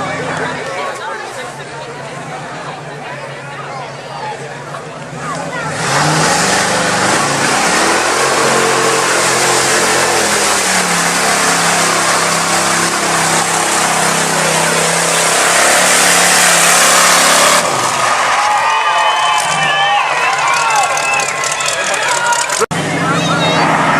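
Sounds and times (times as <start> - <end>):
truck engine at high revs: 0.0 - 18.6, 19.3 - 23.9
loud rushing noise: 5.2 - 18.4.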